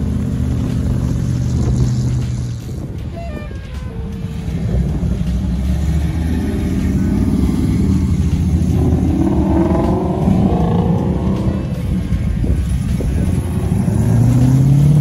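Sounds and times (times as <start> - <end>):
engine revving: 0.0 - 2.8, 3.7 - 15.0
cars driving past: 3.8 - 15.0.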